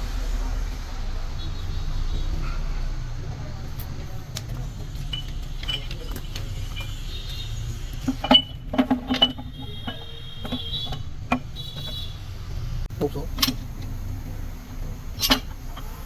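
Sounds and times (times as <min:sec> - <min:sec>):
metal parts clanking: 0:04.4 - 0:12.1, 0:13.3 - 0:14.0, 0:15.2 - 0:16.0.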